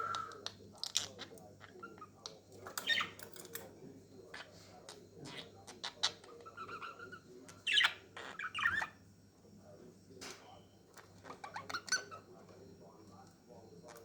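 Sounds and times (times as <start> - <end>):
budgerigars chirping and warbling: 0.9 - 3.3, 4.4 - 9.0, 11.0 - 12.3.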